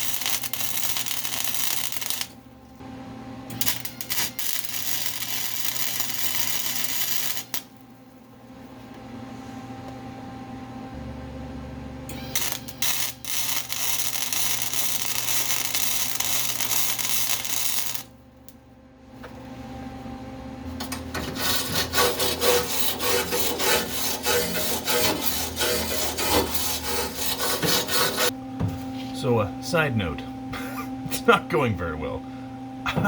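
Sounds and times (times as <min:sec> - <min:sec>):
welding spitting and popping: 0:00.0 - 0:02.3, 0:03.5 - 0:07.6, 0:12.4 - 0:18.0
welder arc crackling: 0:00.0 - 0:02.4, 0:03.5 - 0:07.8, 0:12.1 - 0:18.6, 0:20.9 - 0:28.3.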